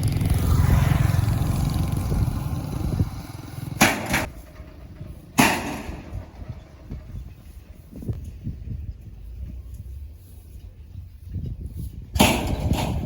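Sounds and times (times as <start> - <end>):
engine rumbling: 0.0 - 13.0.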